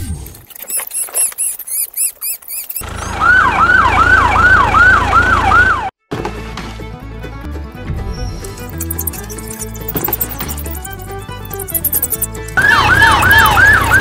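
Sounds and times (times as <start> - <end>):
high squeaky chirps: 0.4 - 2.9, 8.1 - 13.9
police siren wailing: 2.8 - 6.0, 12.6 - 14.0.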